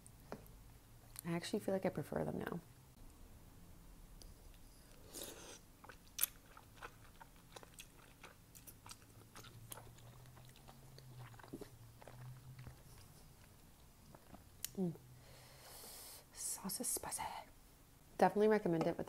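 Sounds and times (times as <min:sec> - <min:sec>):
wet chewing: 0:04.5 - 0:14.8
mouth clicks and smacks: 0:14.1 - 0:14.8.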